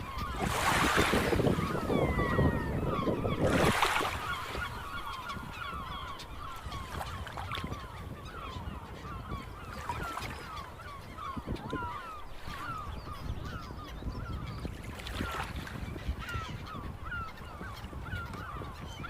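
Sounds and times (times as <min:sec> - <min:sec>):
gulls calling: 0:00.0 - 0:19.0.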